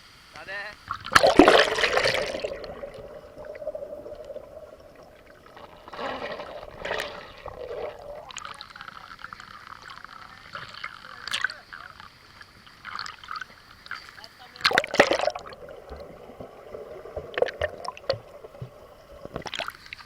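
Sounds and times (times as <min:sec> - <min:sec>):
water splashing in pool: 0:00.8 - 0:20.0
loud splash: 0:00.9 - 0:08.8, 0:14.6 - 0:18.7.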